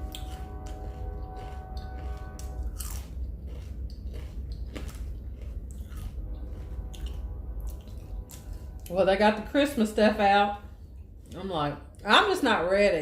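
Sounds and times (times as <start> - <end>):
biting bread: 0.0 - 8.6
wet chewing mouth clicks: 0.0 - 8.9.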